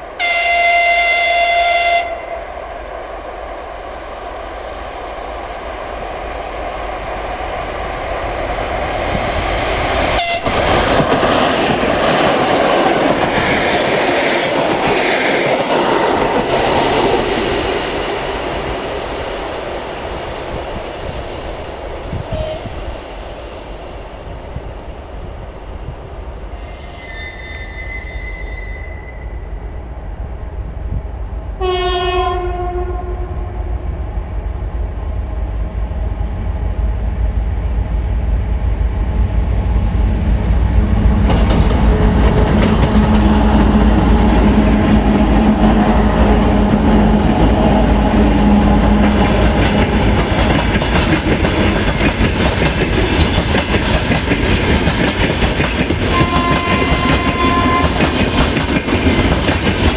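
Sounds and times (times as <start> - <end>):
train engine drone: 0.0 - 59.9
locomotive horn: 0.2 - 2.4, 10.2 - 10.8, 26.6 - 29.6, 31.6 - 33.9, 56.1 - 58.1.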